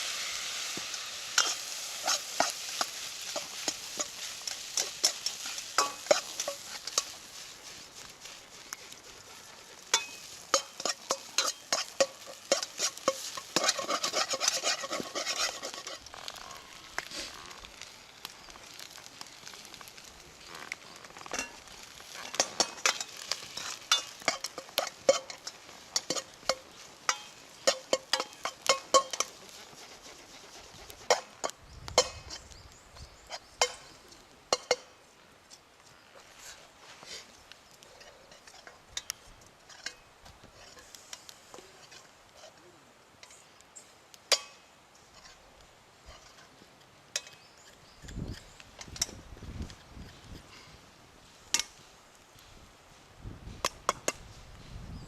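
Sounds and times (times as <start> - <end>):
metal utensil scraping pan: 0.0 - 7.4, 9.9 - 17.5, 20.5 - 29.5, 44.3 - 45.4, 46.1 - 46.5
food sizzling in a pan: 0.0 - 34.9.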